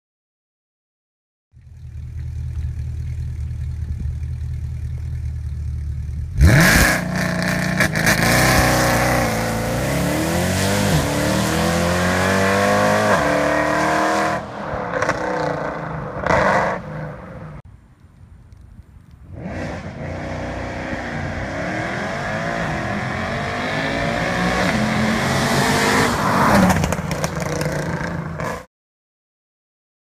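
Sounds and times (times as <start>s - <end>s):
car engine idling: 1.5s - 7.9s
car accelerating hard: 6.4s - 17.2s, 19.3s - 28.6s.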